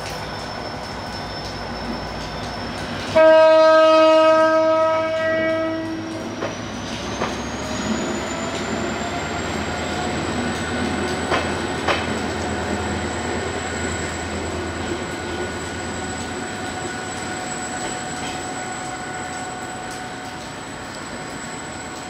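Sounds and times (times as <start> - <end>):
train wheels squealing: 0.0 - 3.2, 5.3 - 22.0
low train rumble: 0.0 - 22.0
wheels clicking over rail joint: 9.6 - 16.3.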